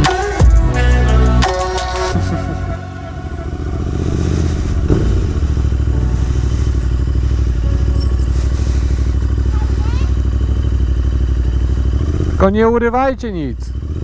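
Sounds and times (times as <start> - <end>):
motorcycle engine idling: 0.0 - 14.0
single knock: 4.8 - 6.8.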